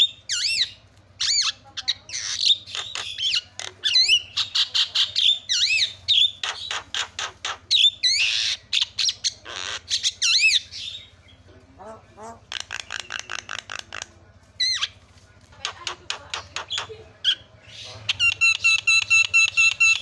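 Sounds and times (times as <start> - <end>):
bird calling with harsh squawks: 0.0 - 20.0.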